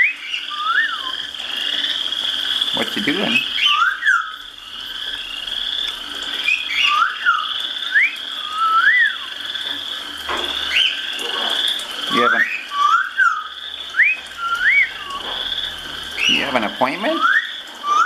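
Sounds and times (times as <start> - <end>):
parrot whistling: 0.0 - 18.0
steady high trilling: 0.0 - 18.0
parrot squawk: 2.7 - 5.4, 10.5 - 18.0.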